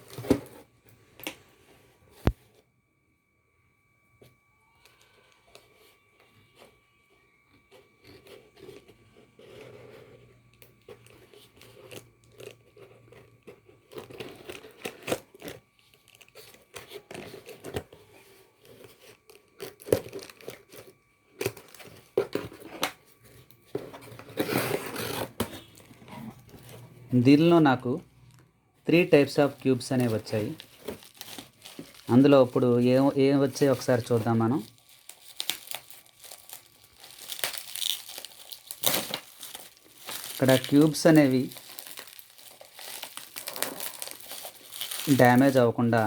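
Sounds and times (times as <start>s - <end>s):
package wrapping tearing: 10.6s - 22.9s, 28.3s - 45.6s.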